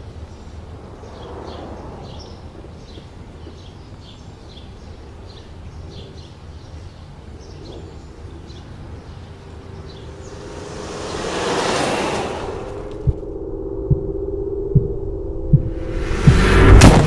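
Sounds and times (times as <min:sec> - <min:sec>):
steady low rumble: 0:08.8 - 0:17.0.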